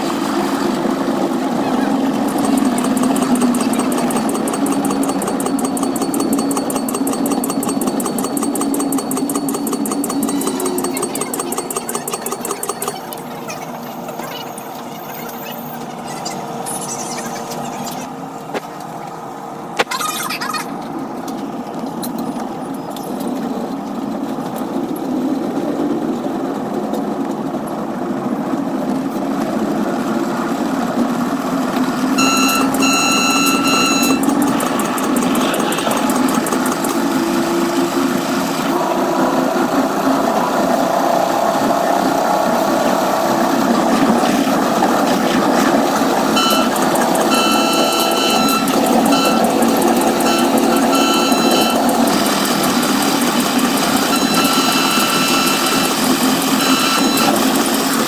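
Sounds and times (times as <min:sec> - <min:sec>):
train wheels rumbling on rails: 0:00.0 - 0:19.8, 0:20.5 - 0:58.0
train horn blast: 0:46.4 - 0:51.8.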